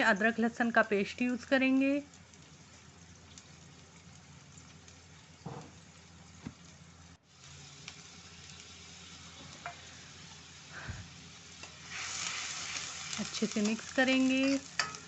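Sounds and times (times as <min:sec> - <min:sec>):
onion paste sizzling in oil: 0:00.0 - 0:15.0
spoon clinking against pan: 0:14.4 - 0:15.0.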